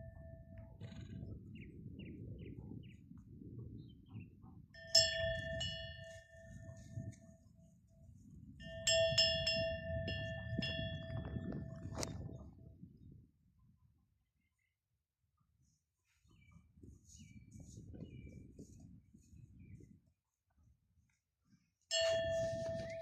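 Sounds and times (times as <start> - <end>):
metal neck bell clanking: 8.6 - 12.0, 21.9 - 23.0.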